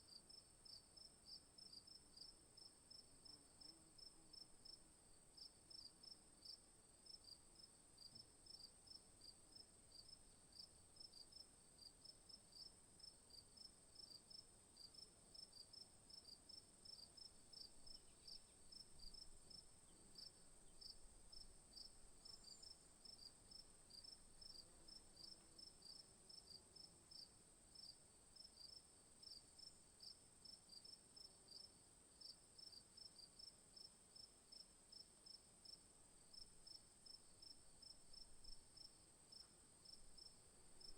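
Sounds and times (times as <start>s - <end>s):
insect chorus chirping: 16.2s - 26.0s, 36.3s - 40.9s.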